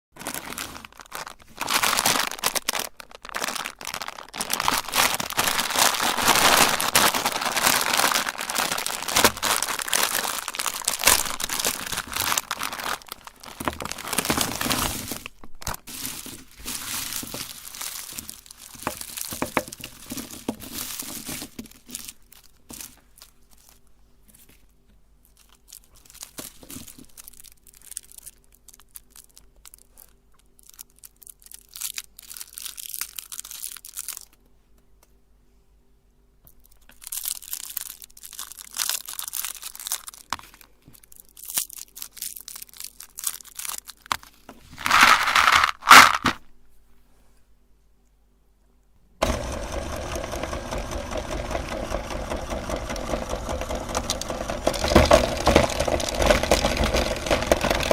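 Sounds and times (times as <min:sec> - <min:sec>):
candy wrappers crinkling and tearing: 0:00.2 - 0:34.5, 0:36.5 - 0:46.4, 0:49.4 - 0:57.9
electric grinder motor running: 0:49.2 - 0:57.9.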